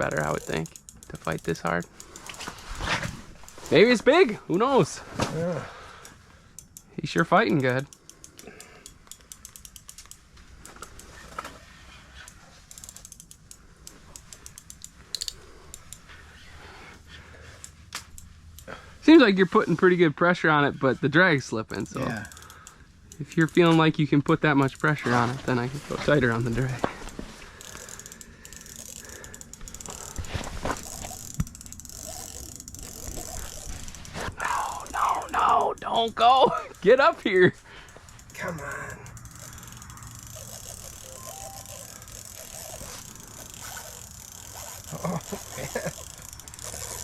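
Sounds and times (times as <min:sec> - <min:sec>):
fishing reel drag clicking: 0:00.0 - 0:02.7, 0:06.0 - 0:16.3, 0:21.7 - 0:23.9, 0:26.2 - 0:36.9, 0:37.9 - 0:47.0.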